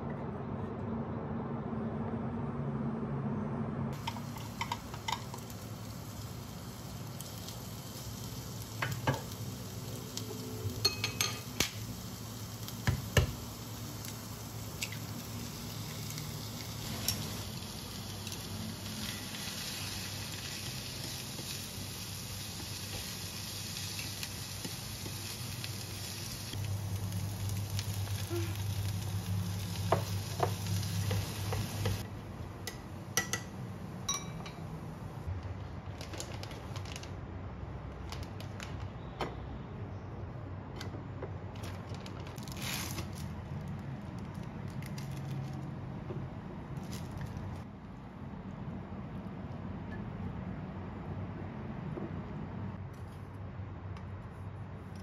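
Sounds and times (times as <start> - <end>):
food sizzling in a pan: 4.0 - 32.0.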